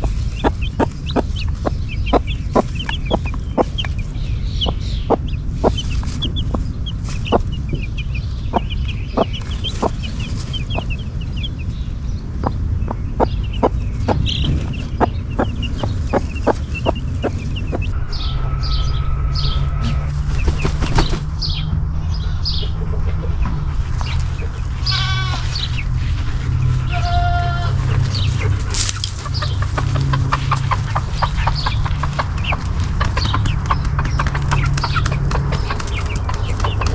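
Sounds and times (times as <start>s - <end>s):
chickens clucking: 0.0s - 18.0s, 22.2s - 36.9s
short chirping calls: 0.0s - 21.7s
chicks peeping: 0.0s - 36.9s
low rumble: 0.0s - 36.9s.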